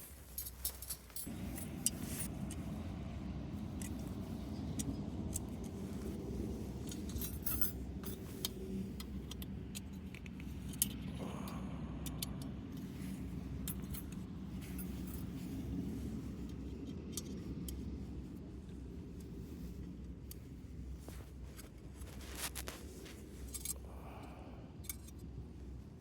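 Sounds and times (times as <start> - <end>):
low rumble: 1.2 - 9.3.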